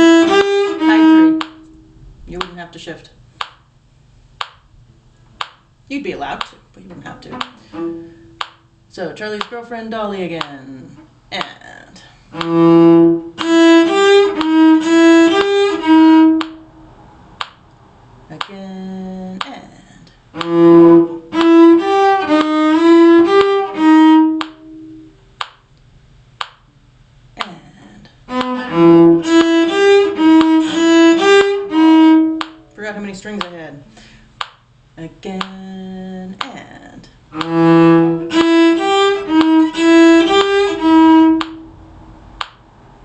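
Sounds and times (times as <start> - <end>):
violin bowed phrase: 0.0 - 2.6, 6.0 - 8.4, 11.7 - 16.9, 20.3 - 25.2, 27.4 - 34.0, 37.3 - 42.0.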